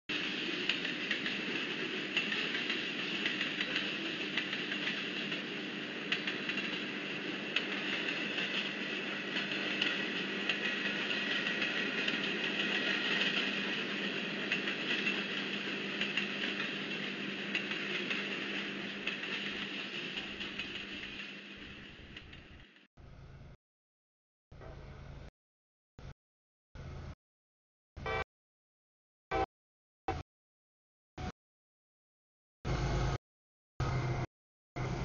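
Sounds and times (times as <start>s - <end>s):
train rail noise: 0.1s - 22.9s.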